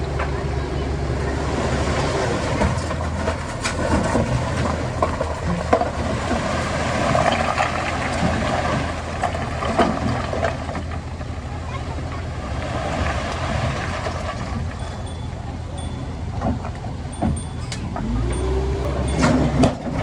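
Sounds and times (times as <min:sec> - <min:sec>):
diesel engine running: 0:00.0 - 0:20.0
metallic knocks and clanks: 0:14.8 - 0:20.0.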